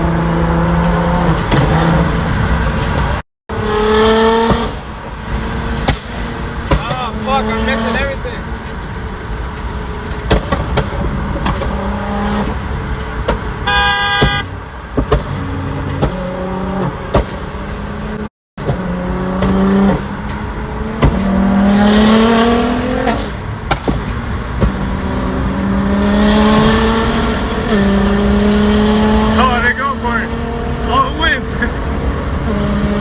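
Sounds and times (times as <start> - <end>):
car engines revving: 0.0 - 33.0
engine pops: 10.1 - 11.8, 23.0 - 25.0
car horn honk: 13.6 - 14.6.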